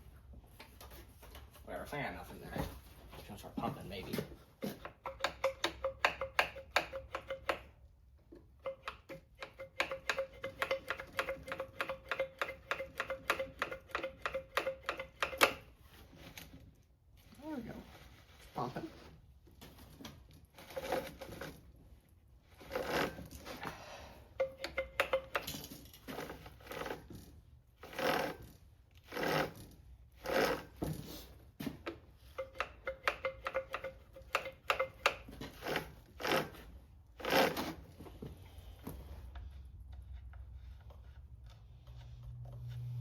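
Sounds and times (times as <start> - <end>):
hand pump rasping strokes: 4.7 - 7.7, 8.5 - 16.5, 20.6 - 21.7, 22.4 - 31.3, 31.9 - 38.2.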